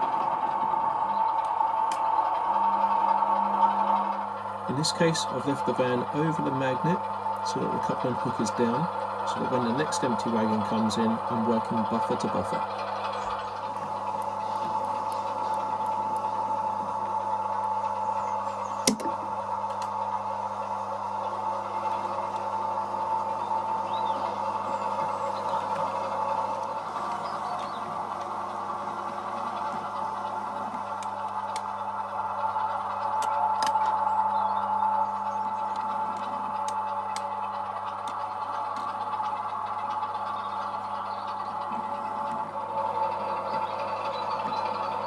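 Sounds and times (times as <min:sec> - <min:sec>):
faint clicks of wheels on track: 0:00.0 - 0:45.0
model locomotive hum and whine: 0:00.0 - 0:45.0
sharp click: 0:18.9 - 0:19.1.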